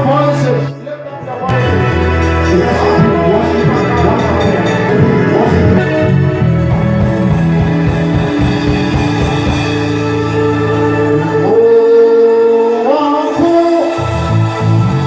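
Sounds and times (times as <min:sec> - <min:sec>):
instrumental backing: 0:00.0 - 0:15.0
people singing worship song: 0:00.0 - 0:15.0.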